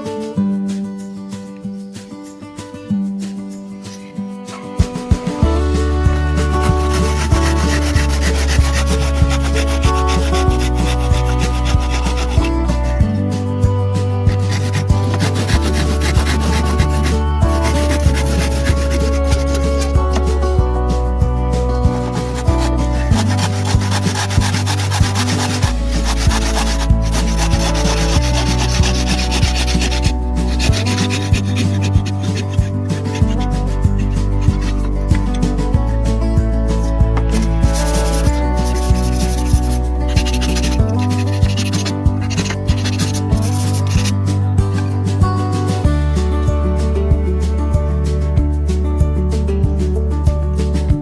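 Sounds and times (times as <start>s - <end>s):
background music with beat: 0.0s - 51.0s
wood being sanded: 5.6s - 13.5s, 14.2s - 20.6s, 21.6s - 35.8s, 36.7s - 44.2s.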